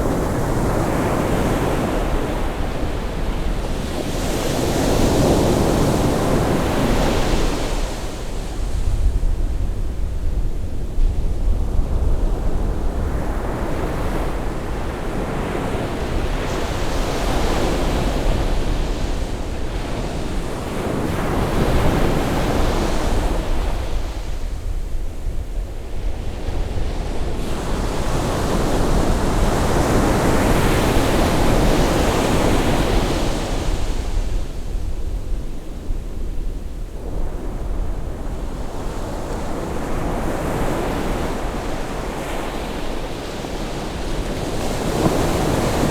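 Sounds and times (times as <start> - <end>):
sea waves breaking on shore: 38.6 - 45.9.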